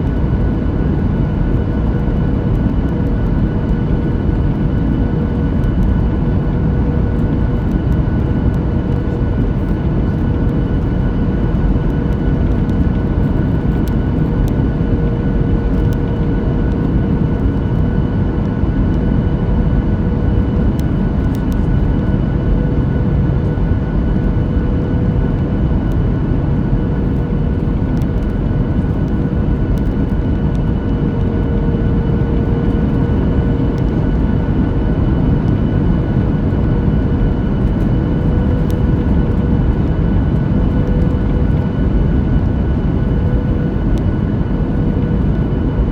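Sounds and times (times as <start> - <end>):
airplane cabin airflow and engines: 0.0 - 45.9.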